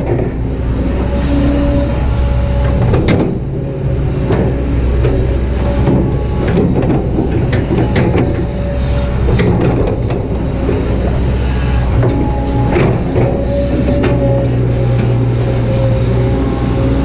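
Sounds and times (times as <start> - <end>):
diesel engine rumbling: 0.0 - 17.0
hydraulic whine: 0.0 - 17.0
metallic clanks and knocks: 2.6 - 15.2.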